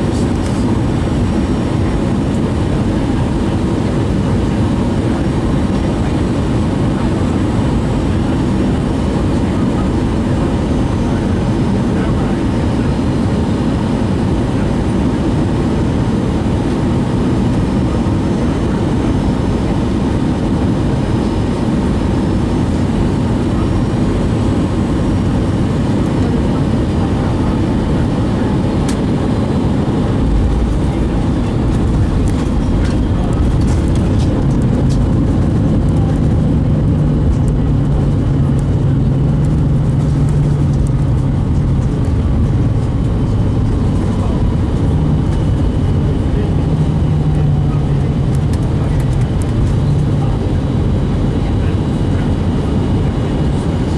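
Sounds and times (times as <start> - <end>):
airplane cabin engine noise: 0.0 - 53.9
steady low hum: 0.0 - 53.9
low rumble: 23.6 - 53.9.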